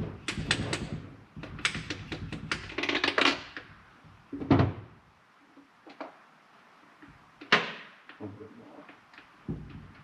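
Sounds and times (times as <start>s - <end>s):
heavy thunk: 9.5s - 10.0s.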